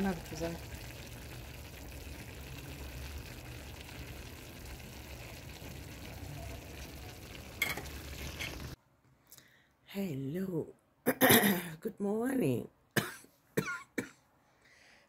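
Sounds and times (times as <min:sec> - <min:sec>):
meat sizzling in pan: 0:00.0 - 0:08.8.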